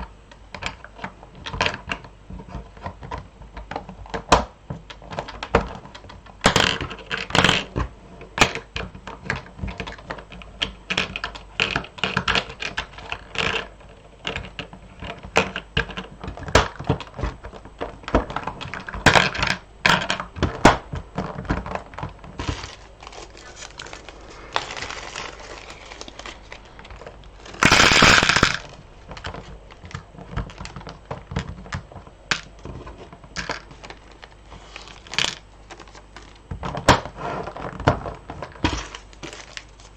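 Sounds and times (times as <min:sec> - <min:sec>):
rustling noise: 0:22.3 - 0:29.8
beads clicking and rattling: 0:27.6 - 0:28.6.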